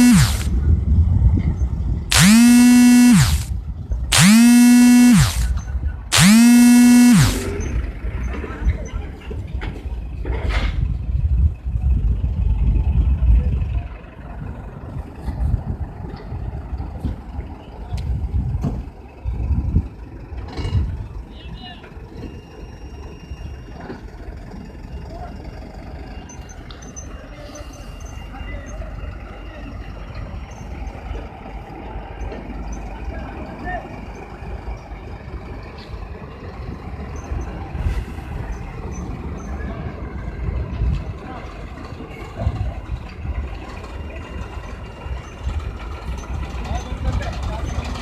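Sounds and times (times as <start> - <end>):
sharp clicks: 0.0 - 0.5, 2.1 - 3.5, 4.1 - 7.6
diesel engine rumbling: 0.0 - 48.0.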